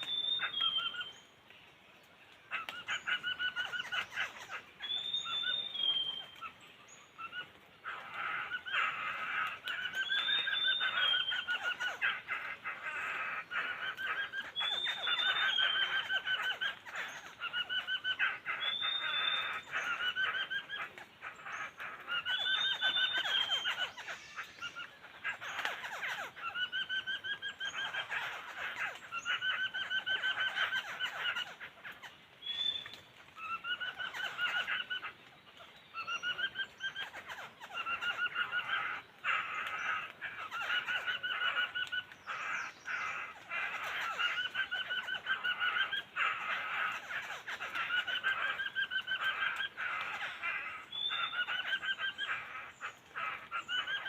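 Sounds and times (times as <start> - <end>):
high whistled bird notes: 0.0 - 1.1, 4.8 - 6.3, 10.0 - 11.5, 14.6 - 16.1, 18.6 - 20.0, 22.3 - 24.6, 51.0 - 52.4
bird chattering call: 2.5 - 6.6, 7.2 - 35.2, 36.0 - 54.0.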